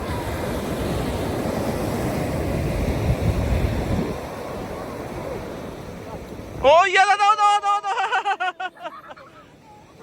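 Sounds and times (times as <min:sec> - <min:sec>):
wind rumbling on microphone: 0:00.0 - 0:06.7
sea surf rushing on shore: 0:00.0 - 0:10.0.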